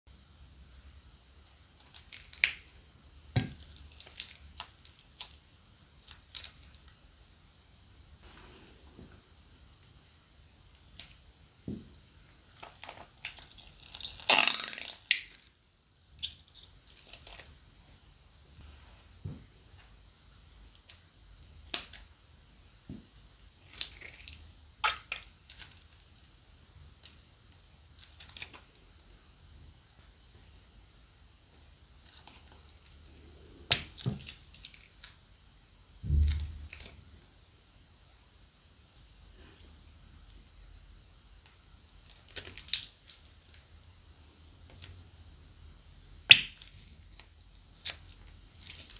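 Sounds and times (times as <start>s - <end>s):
plastic bags crinkling and snipped: 46.6s - 48.9s.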